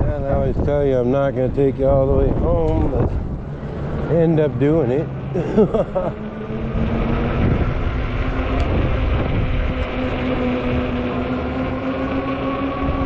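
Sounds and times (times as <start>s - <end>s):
wind rumble on microphone: 0.0s - 13.0s
electric bike motor whining: 5.0s - 13.0s.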